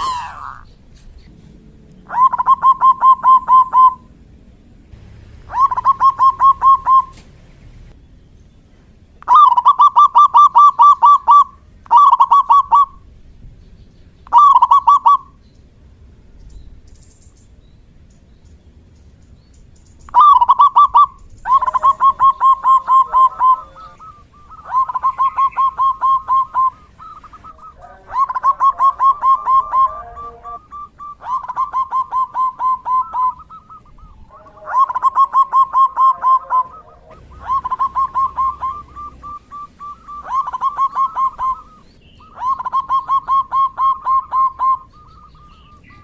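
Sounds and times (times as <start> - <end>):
dove cooing: 0.0 - 4.2, 5.0 - 7.9, 9.2 - 13.1, 14.3 - 15.4, 20.1 - 46.0
second lower dove call: 5.5 - 7.4, 20.1 - 46.0.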